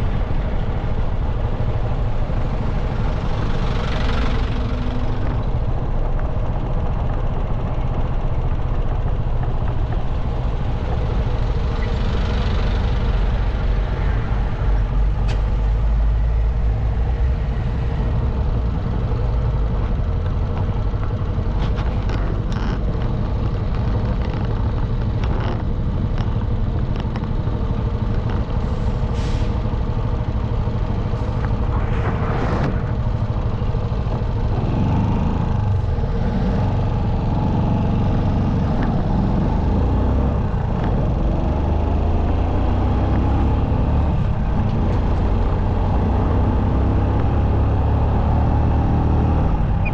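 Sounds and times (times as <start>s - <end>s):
wind noise: 30.8s - 36.0s.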